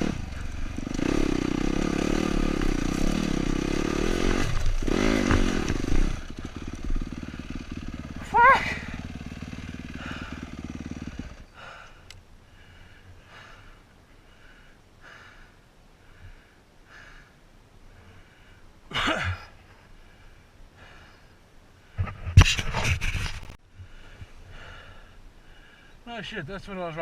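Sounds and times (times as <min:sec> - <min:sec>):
dirt bike engine cutting out: 0:00.0 - 0:11.5
heavy breathing: 0:08.6 - 0:18.8, 0:19.7 - 0:22.2, 0:23.8 - 0:26.0.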